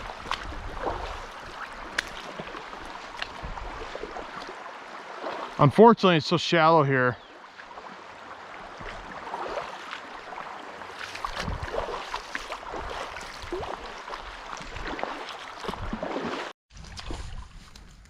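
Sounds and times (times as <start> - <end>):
stream water rushing over rocks: 0.0 - 6.6.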